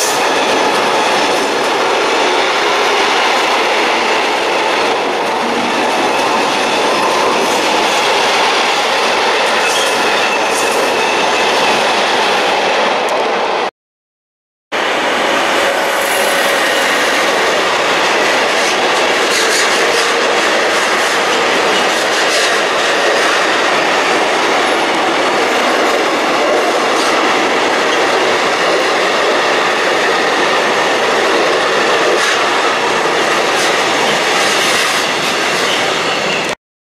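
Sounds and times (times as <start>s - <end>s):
train wheels rolling on rails: 0.0s - 13.6s, 14.8s - 36.6s.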